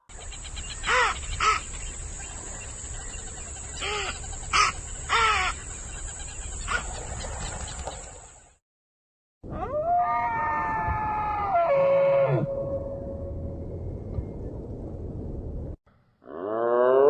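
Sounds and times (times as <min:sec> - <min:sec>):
bird calling: 0:00.1 - 0:08.4.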